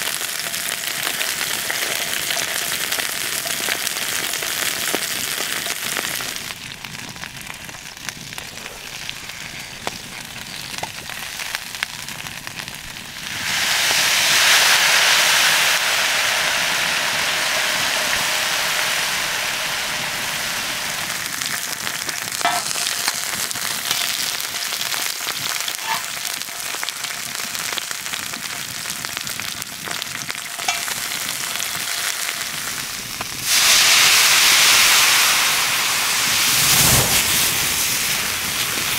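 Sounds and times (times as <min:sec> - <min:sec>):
prawns sizzling on a fire: 0:00.0 - 0:38.9.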